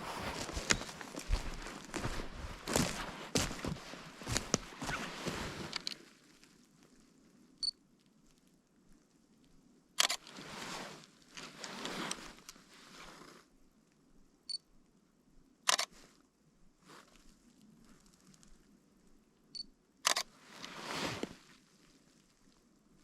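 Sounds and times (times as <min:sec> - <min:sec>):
footsteps crunching in snow: 0:00.0 - 0:05.9
camera shutter click: 0:10.0 - 0:10.2, 0:20.1 - 0:20.3
camera focus beep: 0:15.7 - 0:15.9, 0:19.6 - 0:20.3.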